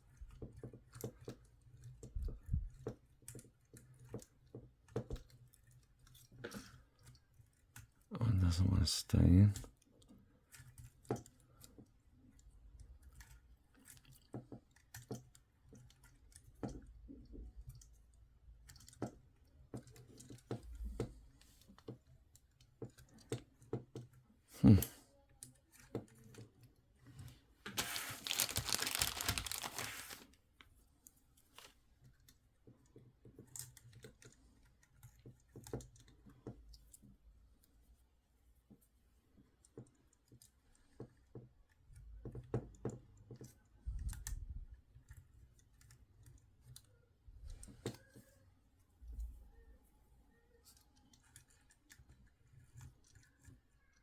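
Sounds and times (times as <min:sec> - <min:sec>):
rustling: 0:27.2 - 0:30.4.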